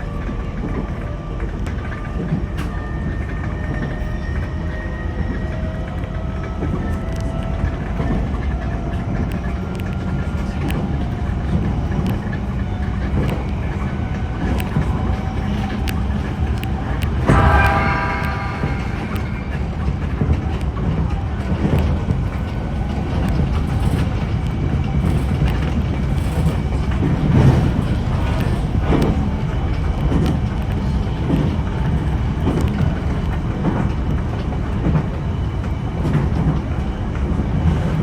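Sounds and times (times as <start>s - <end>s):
train rumble: 0.0s - 38.0s
louder pitched sound: 17.2s - 20.1s
wheels clicking over rail joints: 21.4s - 35.2s.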